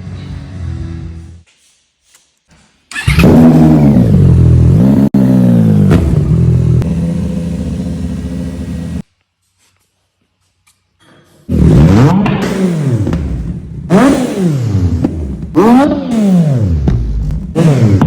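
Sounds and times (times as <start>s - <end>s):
motorcycle engine revving and idling: 3.0s - 9.0s, 11.5s - 18.0s.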